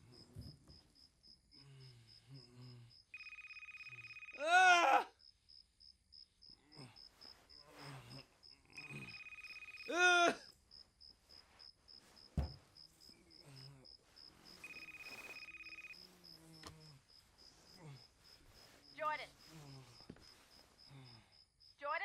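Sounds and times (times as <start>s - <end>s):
crickets chirping: 0.0s - 22.0s
telephone ringing: 3.1s - 4.4s, 8.8s - 10.0s, 14.6s - 16.3s
man's strained moan: 4.4s - 5.1s, 9.9s - 10.5s
low thump: 12.3s - 12.7s.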